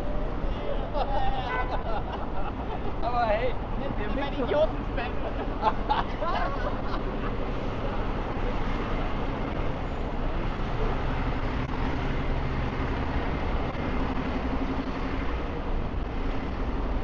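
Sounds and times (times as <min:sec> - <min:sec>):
city street traffic: 0:00.0 - 0:17.0
nearby engine low hum: 0:04.7 - 0:17.0.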